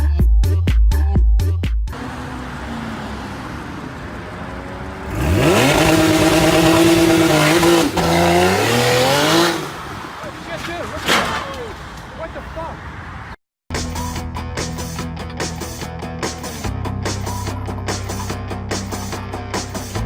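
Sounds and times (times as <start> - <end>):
vehicle engine accelerating hard: 1.9 - 10.0.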